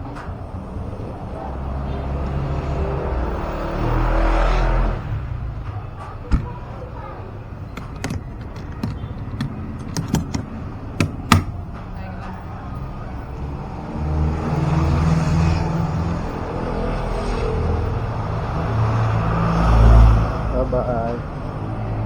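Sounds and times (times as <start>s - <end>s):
road noise: 0.0s - 22.0s
sharp irregular clicks and knocks: 7.7s - 11.6s.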